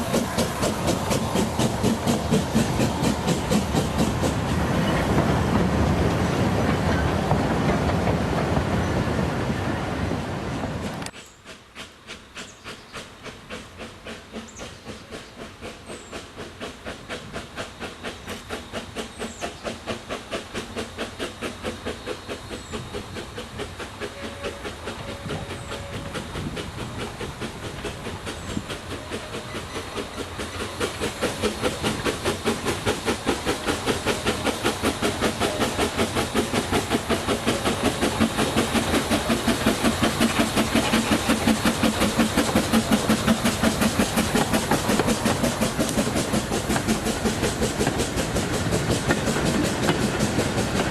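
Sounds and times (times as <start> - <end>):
steam locomotive exhaust beating: 0.0 - 50.9.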